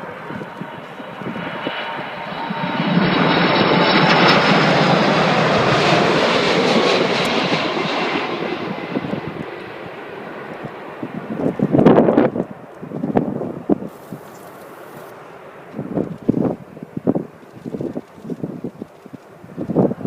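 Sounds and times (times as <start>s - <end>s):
jet engines roaring: 0.0s - 20.0s
faint steady whine: 13.9s - 19.7s.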